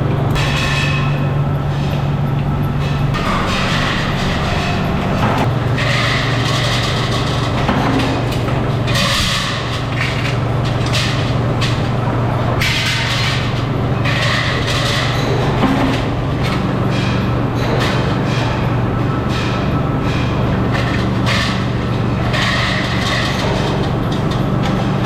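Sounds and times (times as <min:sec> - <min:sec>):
machinery low hum: 0:00.0 - 0:12.6
harsh machine noise: 0:00.0 - 0:12.7.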